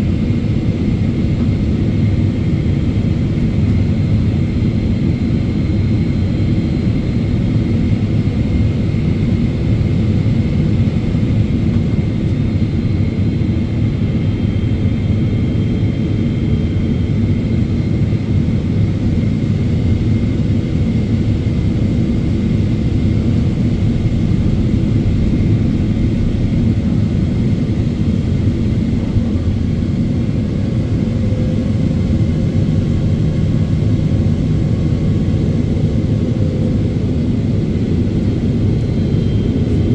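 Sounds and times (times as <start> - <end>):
jet engines: 0.0 - 39.9
low rumble of airflow: 18.5 - 39.9.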